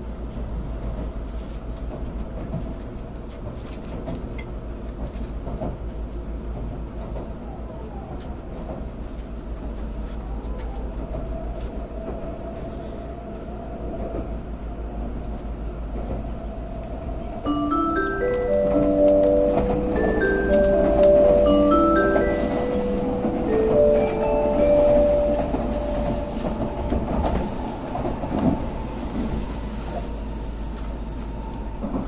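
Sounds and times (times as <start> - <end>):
train cabin low rumble: 0.0 - 32.0
chime melody: 17.4 - 26.6.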